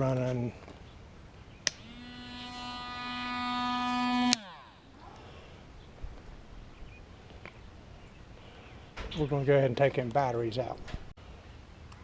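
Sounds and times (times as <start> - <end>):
pump motor buzzing whine: 1.7 - 5.4.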